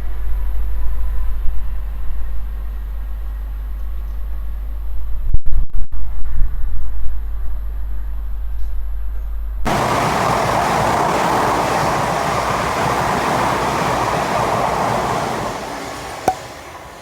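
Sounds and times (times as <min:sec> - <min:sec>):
train passing at speed: 0:09.7 - 0:17.0.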